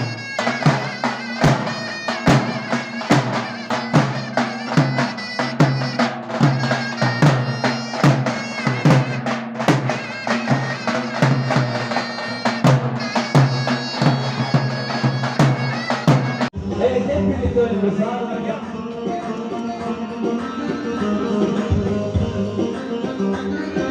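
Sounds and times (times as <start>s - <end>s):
shrill double-reed melody: 0.0s - 16.5s.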